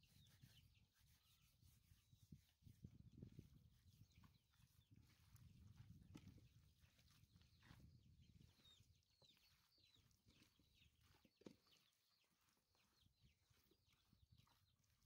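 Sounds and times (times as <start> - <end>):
faint high bird chirps: 0.0 - 2.5, 6.6 - 15.0
hands handling raw chicken: 3.7 - 15.0.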